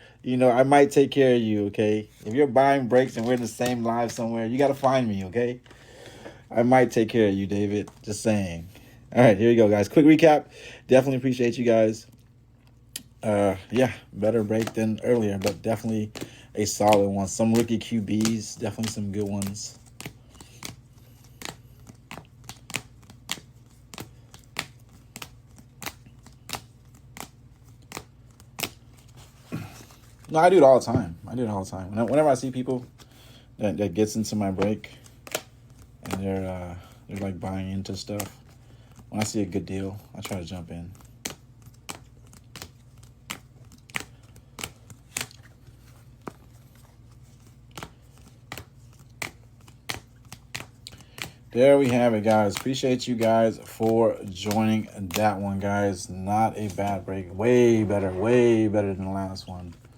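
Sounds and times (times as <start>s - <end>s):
low steady hum: 0.0s - 59.9s
cards clicking down: 2.2s - 4.9s, 13.0s - 30.4s, 34.0s - 59.9s.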